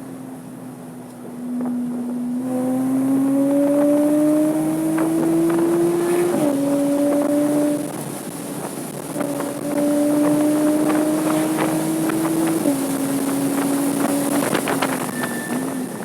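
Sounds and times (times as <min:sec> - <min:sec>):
sports car engine pulling hard: 0:00.0 - 0:16.0
wind noise: 0:01.2 - 0:16.0
thin high squeal: 0:14.9 - 0:16.0.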